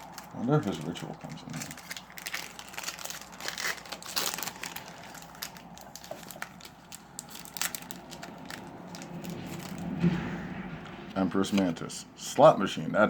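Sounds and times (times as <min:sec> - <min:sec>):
foil wrappers crinkling: 0:00.0 - 0:09.8
trading cards being handled: 0:00.0 - 0:09.9.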